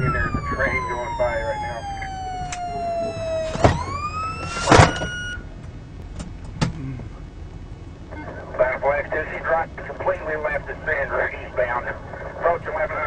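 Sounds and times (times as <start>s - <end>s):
police siren wailing: 0.0s - 5.6s.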